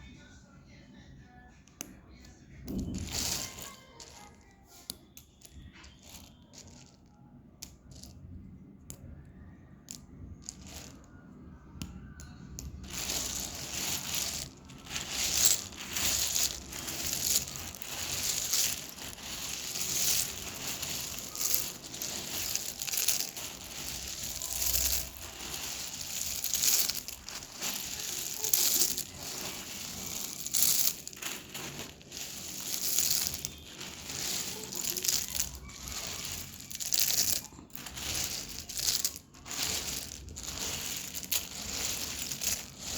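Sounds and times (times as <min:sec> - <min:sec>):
dry clay crunching: 0:12.6 - 0:42.9.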